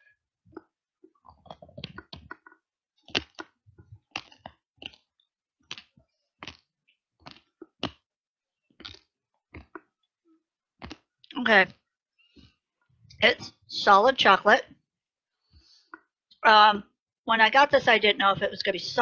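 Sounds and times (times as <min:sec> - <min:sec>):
chocolate crunching: 0:00.5 - 0:10.1, 0:10.8 - 0:11.4.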